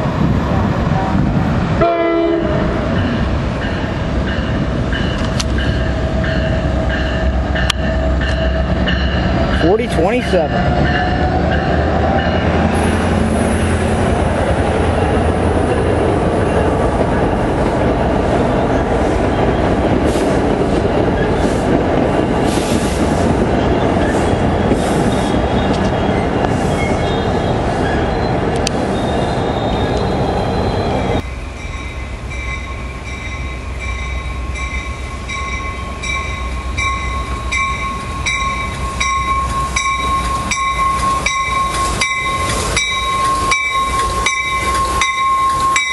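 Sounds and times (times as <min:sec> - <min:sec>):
train wheels rumbling on rail: 0:00.0 - 0:45.9
wheels ticking over rail joints: 0:35.4 - 0:45.9.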